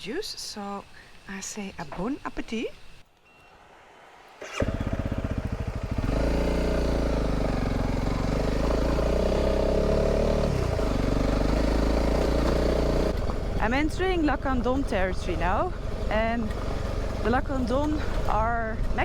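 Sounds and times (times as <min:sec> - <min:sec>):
motorcycle engine idling and riding: 0:04.4 - 0:19.0.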